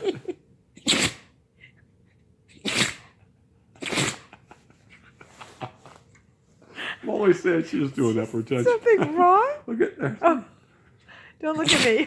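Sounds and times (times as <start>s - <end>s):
dog sneezing: 0.8s - 1.4s, 2.5s - 3.2s, 3.8s - 4.5s, 11.6s - 12.0s.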